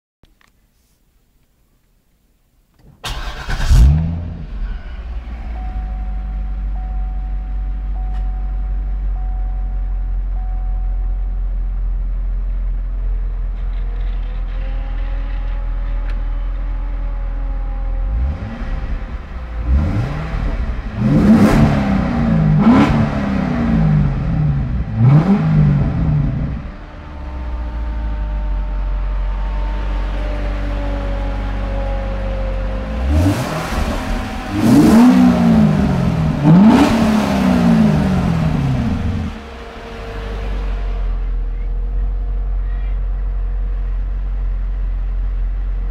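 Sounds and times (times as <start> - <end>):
car engine idling and revving: 2.8 - 45.9.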